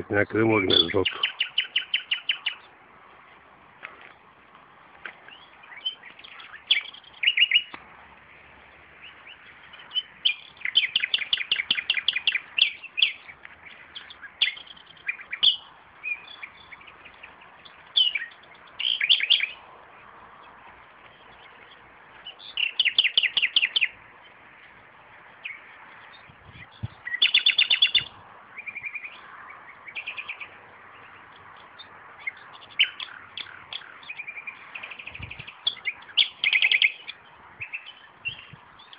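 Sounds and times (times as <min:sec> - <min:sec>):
nightingale singing: 0:00.0 - 0:02.8, 0:05.1 - 0:07.8, 0:08.6 - 0:24.4, 0:25.3 - 0:38.9.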